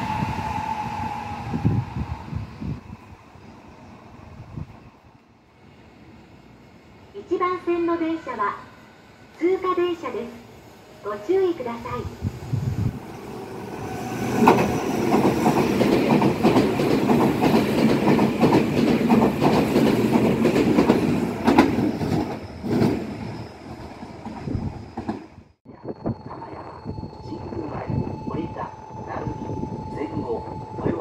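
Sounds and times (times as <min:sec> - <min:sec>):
train wheels clacking on joints: 0:14.4 - 0:23.0.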